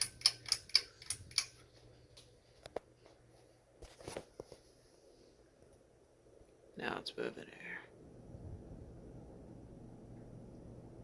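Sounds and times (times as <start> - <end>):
pull-chain switch clicks: 0.0 - 1.6
fan motor hum: 0.0 - 11.0.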